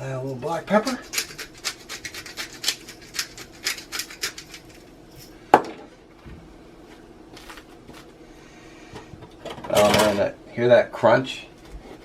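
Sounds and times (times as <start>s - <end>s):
pepper grinder grinding: 0.3s - 5.3s.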